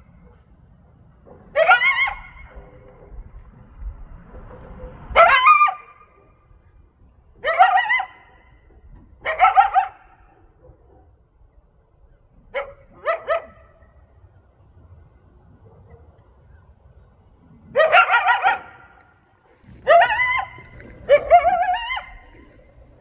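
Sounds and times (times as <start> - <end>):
coyote barking and yipping: 1.3 - 3.3, 4.4 - 6.7, 7.4 - 11.1, 12.5 - 14.1, 17.6 - 23.0.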